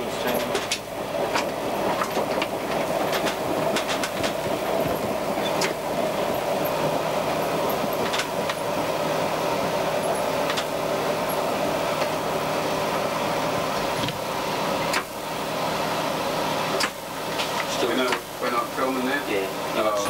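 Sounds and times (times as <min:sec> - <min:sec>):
rail clicks: 0:00.0 - 0:08.8, 0:10.0 - 0:12.2, 0:14.8 - 0:15.2, 0:16.6 - 0:20.0
railcar engine and wheels drone: 0:00.0 - 0:20.0.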